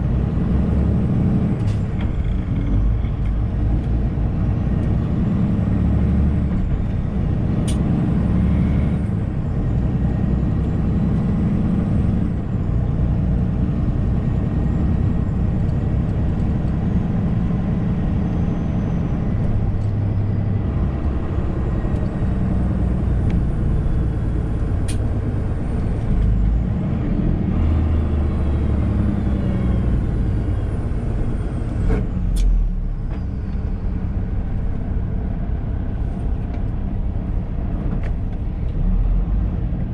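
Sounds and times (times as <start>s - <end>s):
truck diesel engine drone: 0.0s - 39.9s.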